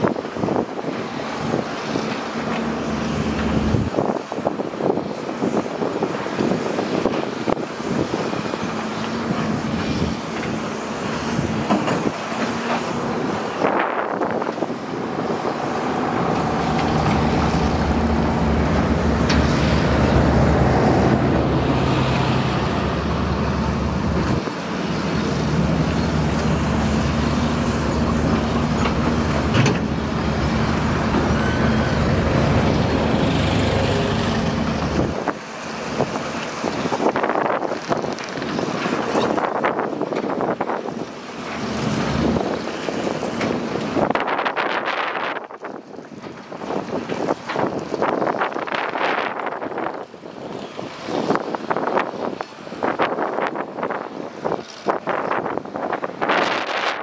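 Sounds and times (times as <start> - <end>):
heavy diesel engine working: 0.0 - 45.4.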